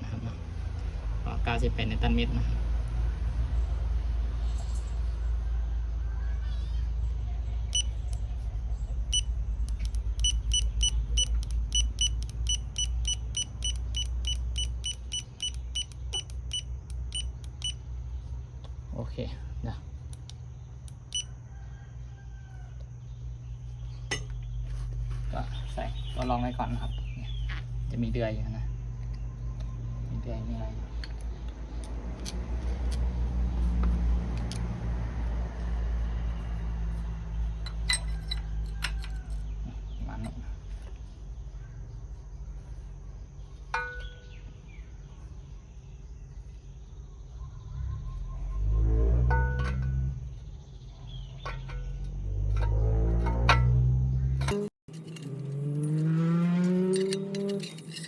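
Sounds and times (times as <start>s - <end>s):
steady low hum: 7.5s - 18.9s
torque wrench beeping: 7.7s - 8.3s, 9.1s - 17.8s, 20.9s - 21.3s, 54.4s - 58.0s
light metallic clicks: 9.1s - 17.8s.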